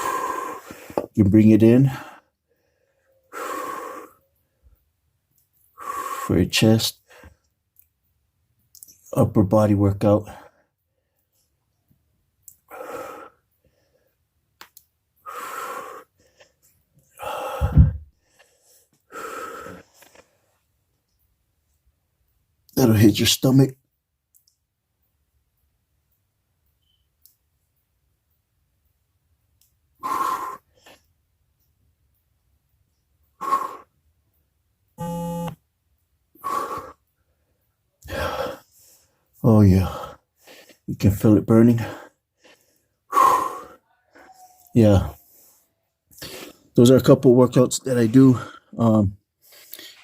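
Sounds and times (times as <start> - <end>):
man breathing out hard: 17.2 - 19.8
low thump: 17.6 - 18.1.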